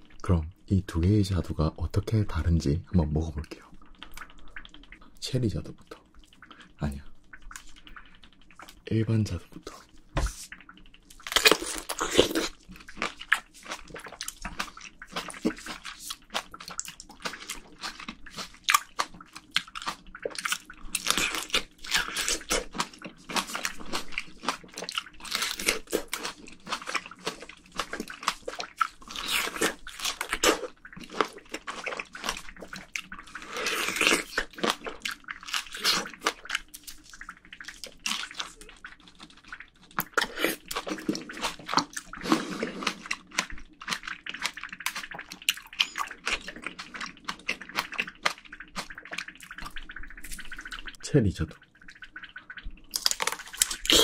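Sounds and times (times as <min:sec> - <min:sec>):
biting and chewing plum: 0:10.2 - 0:50.8, 0:52.9 - 0:54.0.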